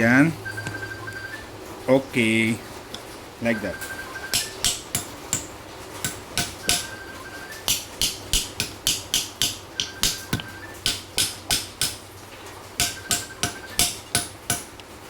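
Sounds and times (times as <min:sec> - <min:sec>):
metal-on-metal hammer taps: 0:04.3 - 0:12.0, 0:12.8 - 0:14.8.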